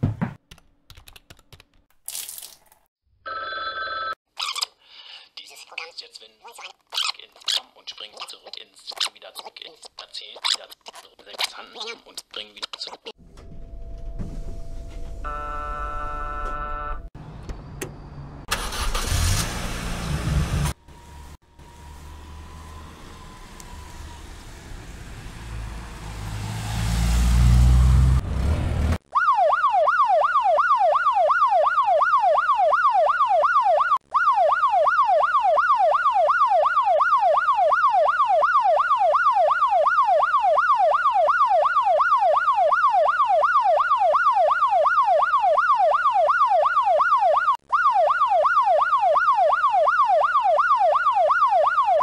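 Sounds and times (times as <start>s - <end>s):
car engine revving: 18.5s - 29.0s
police siren yelping: 20.7s - 25.6s, 29.1s - 52.0s.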